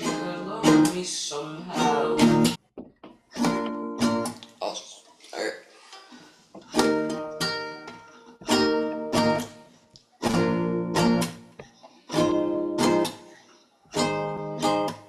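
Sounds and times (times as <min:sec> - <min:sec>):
acoustic guitar strumming chords: 0:00.0 - 0:02.6, 0:03.4 - 0:04.4, 0:06.6 - 0:15.0.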